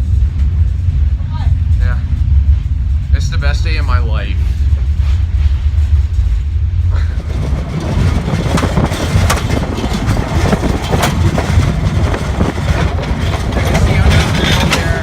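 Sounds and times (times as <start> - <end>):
train low rumble: 0.0 - 15.0
clicks and rattles: 7.2 - 15.0.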